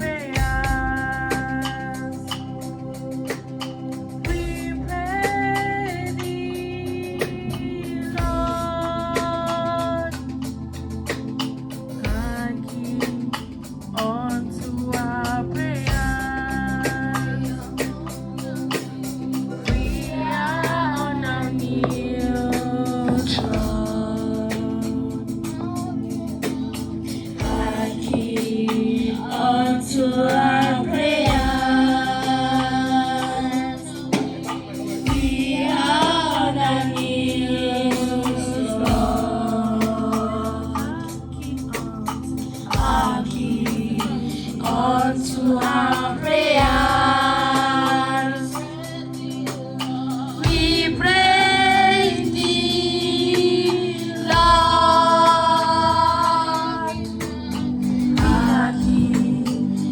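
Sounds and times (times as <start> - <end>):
woman singing: 0.0 - 2.3, 4.3 - 10.2, 12.0 - 59.9
sustained keyboard chords: 0.0 - 59.9
low drum beat: 0.3 - 1.6, 4.2 - 5.8, 6.4 - 10.4, 12.1 - 18.2, 19.1 - 48.1, 50.4 - 59.9
choir singing: 14.1 - 42.0, 42.6 - 59.9.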